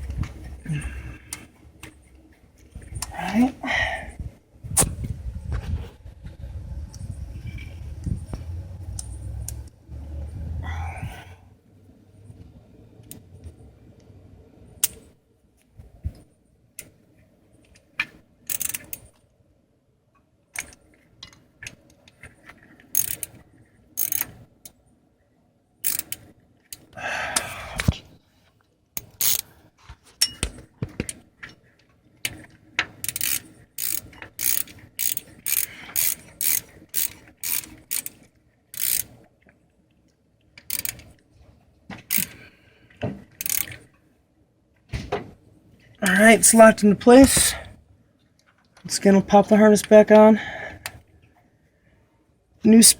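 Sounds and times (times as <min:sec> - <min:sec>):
ratchet wrench clicking: 0:18.5 - 0:19.0, 0:22.9 - 0:23.3, 0:24.0 - 0:24.4, 0:25.8 - 0:26.8, 0:29.0 - 0:29.4, 0:33.0 - 0:39.1, 0:40.6 - 0:41.1, 0:42.1 - 0:42.4, 0:43.4 - 0:43.8.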